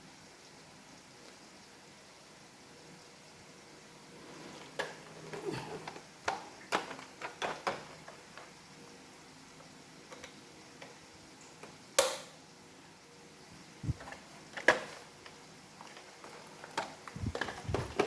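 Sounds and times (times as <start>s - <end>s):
plastic parts clicking and knocking: 6.3s - 8.5s, 15.8s - 18.0s.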